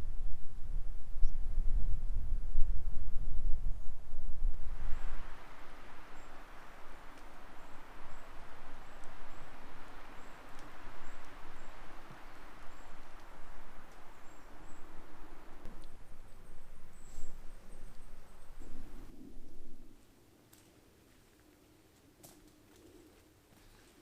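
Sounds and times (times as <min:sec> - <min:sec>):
steady rushing hiss: 0:04.4 - 0:24.0
footsteps on rough ground: 0:20.5 - 0:24.0.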